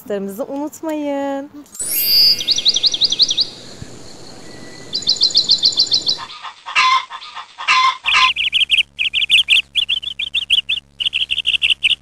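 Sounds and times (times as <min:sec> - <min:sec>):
small bird chirping: 0:01.8 - 0:06.3, 0:08.0 - 0:12.0.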